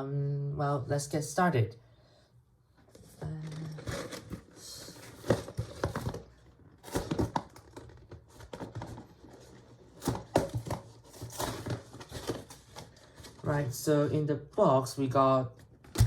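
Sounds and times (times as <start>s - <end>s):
cardboard box crinkling and tearing: 3.5s - 13.6s.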